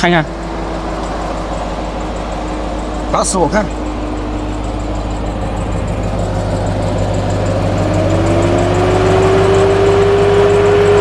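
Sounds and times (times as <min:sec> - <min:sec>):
rising tone: 0:00.0 - 0:11.0
truck engine running: 0:00.0 - 0:11.0.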